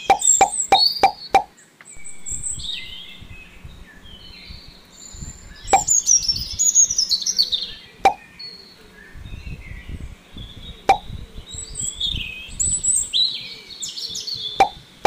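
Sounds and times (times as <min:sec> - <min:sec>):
sharp plopping clicks: 0:00.0 - 0:01.5, 0:14.6 - 0:14.8
small birds chirping: 0:00.0 - 0:15.0.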